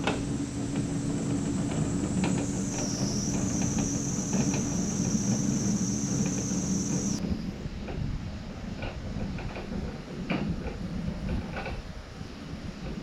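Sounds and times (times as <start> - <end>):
shop equipment hum: 0.0 - 7.2
high-pitched machine whine: 0.0 - 7.6.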